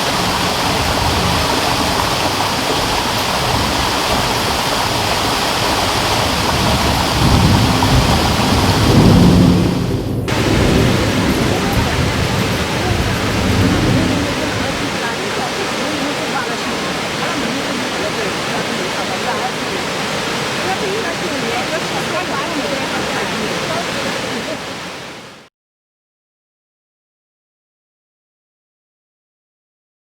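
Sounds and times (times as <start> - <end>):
rushing water: 0.0 - 25.5.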